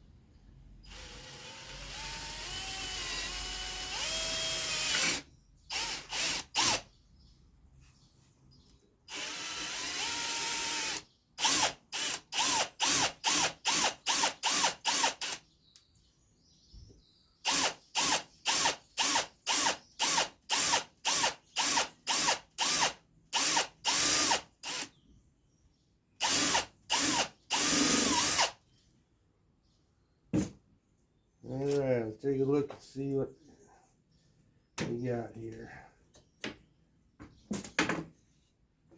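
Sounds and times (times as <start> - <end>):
power drill boring into wood: 0.9 - 6.9, 9.1 - 15.4, 17.4 - 24.9, 26.2 - 28.6.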